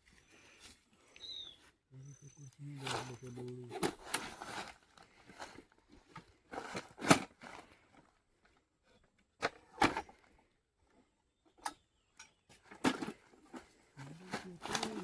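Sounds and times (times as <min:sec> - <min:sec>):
rustling and scraping: 0:02.6 - 0:10.4, 0:12.4 - 0:15.0.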